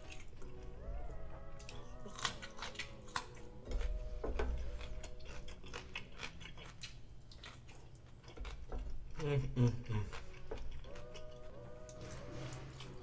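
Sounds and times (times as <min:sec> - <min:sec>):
wet mouth chewing: 0:04.7 - 0:12.0.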